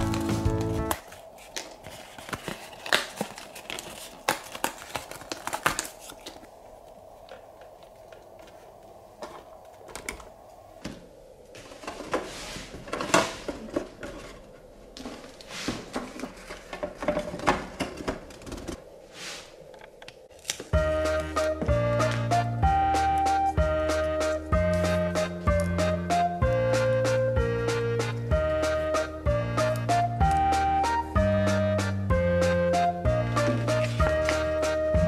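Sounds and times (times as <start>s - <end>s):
plastic packaging crinkling and tearing: 0.0s - 7.9s.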